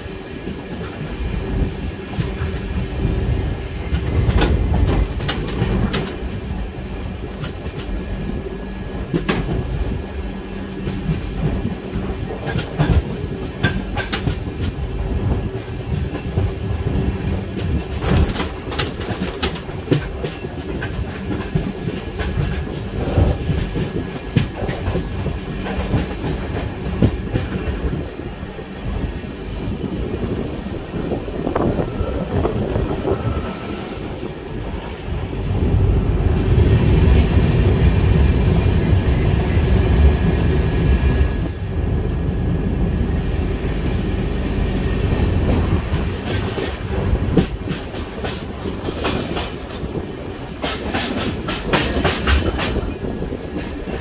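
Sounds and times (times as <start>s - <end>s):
train rumbling: 0.0s - 54.0s
wheels clicking over rail joints: 3.9s - 6.3s, 15.6s - 28.0s.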